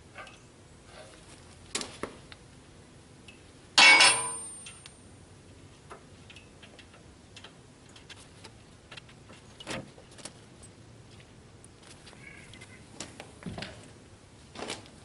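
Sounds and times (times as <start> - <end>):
wrench clanging on steel frame: 3.8 - 4.9.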